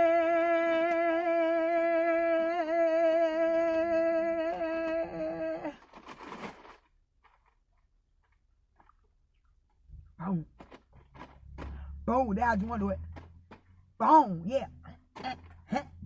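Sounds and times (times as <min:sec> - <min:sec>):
person singing long note: 0:00.0 - 0:05.7.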